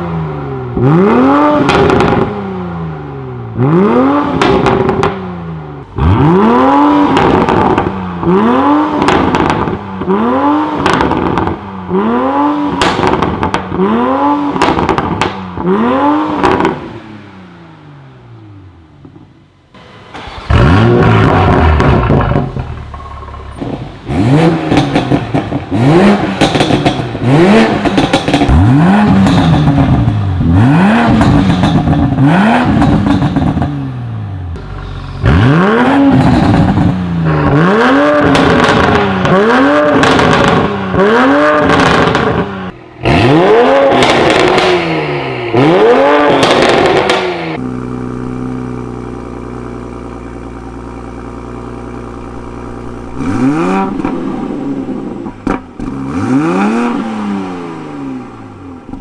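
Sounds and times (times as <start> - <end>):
car engine revving: 0.0 - 59.0
car engine idling: 17.8 - 32.2, 32.8 - 37.7, 42.7 - 59.0.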